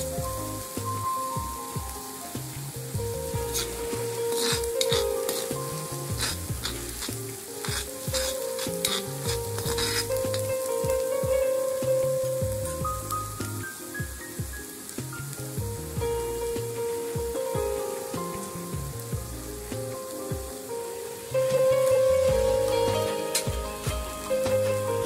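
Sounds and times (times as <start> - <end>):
paste sizzling in hot oil: 0.0 - 17.1, 20.5 - 25.0
background music: 0.0 - 25.0
spoon scraping a pan: 3.5 - 10.5.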